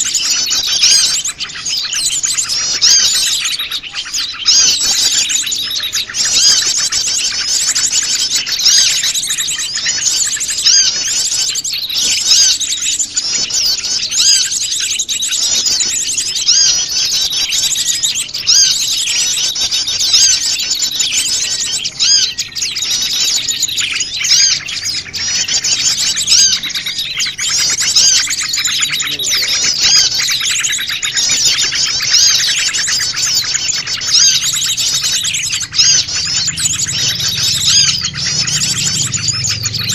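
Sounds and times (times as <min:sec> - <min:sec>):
small birds chirping and twittering: 0:00.0 - 0:39.9.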